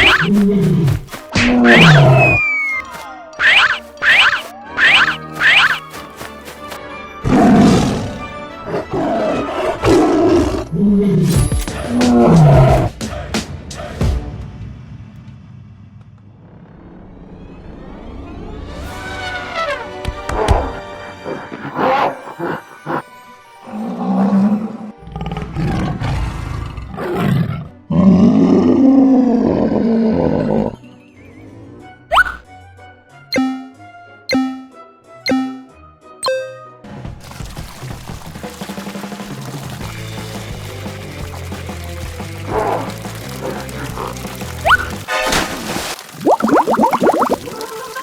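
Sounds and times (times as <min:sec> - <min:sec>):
cartoon animal roars: 0:00.0 - 0:05.8, 0:25.1 - 0:30.8
background music: 0:00.0 - 0:14.9, 0:30.8 - 0:45.3.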